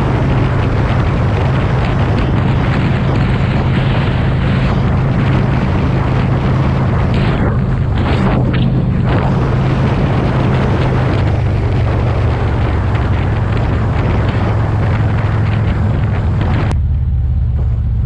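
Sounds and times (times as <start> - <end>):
motorcycle engine running: 0.0 - 18.0
wind rush on microphone: 0.0 - 18.0.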